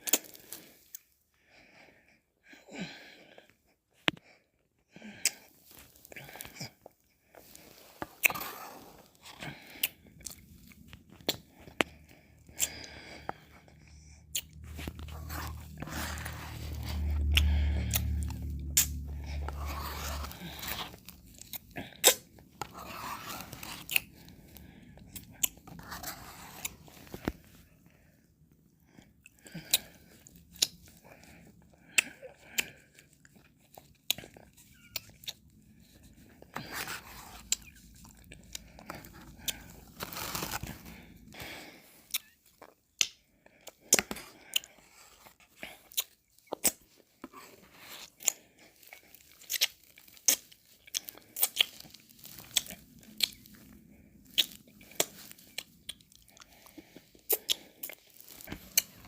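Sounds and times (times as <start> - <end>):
slurping: 7.4 - 27.6, 32.0 - 41.2
mouth eating ice cream: 7.6 - 27.6, 47.6 - 59.0.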